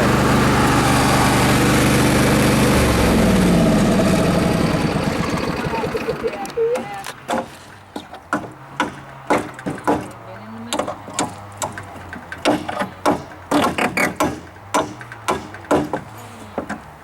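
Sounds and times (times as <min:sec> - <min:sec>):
low hum: 0:00.0 - 0:06.6
hammer striking wood and nails: 0:06.8 - 0:16.9.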